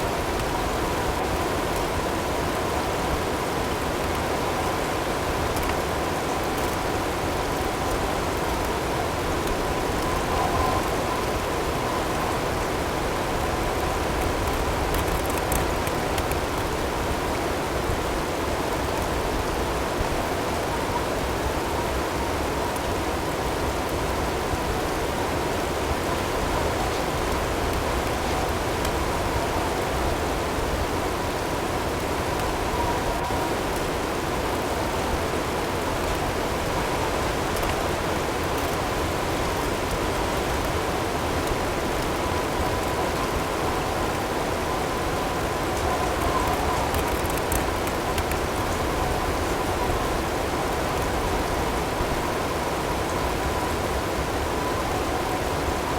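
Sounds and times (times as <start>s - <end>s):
wind-driven snowstorm: 0.0s - 55.9s
faint hail ticks: 13.3s - 17.3s, 45.5s - 50.2s.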